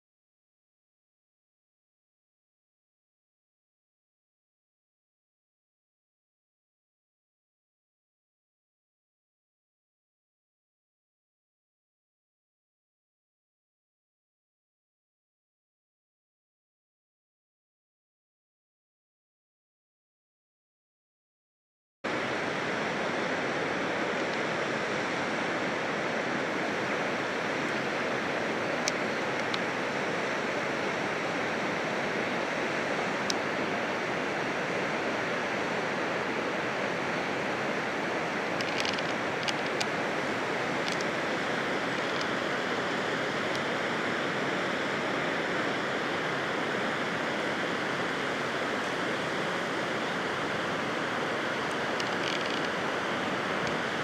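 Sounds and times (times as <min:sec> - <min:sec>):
waterfall rushing: 0:22.1 - 0:54.0
faint high clicks: 0:51.7 - 0:52.8.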